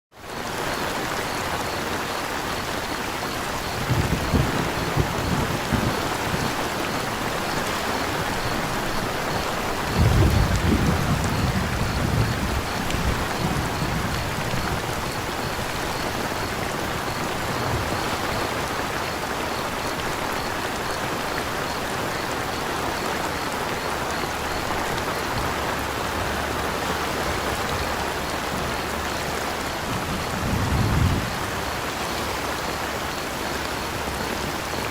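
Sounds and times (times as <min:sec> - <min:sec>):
steady rain: 0:00.1 - 0:34.9
faint cricket chirps: 0:00.2 - 0:34.9
low thunder rumbles: 0:03.4 - 0:19.0, 0:25.2 - 0:32.6.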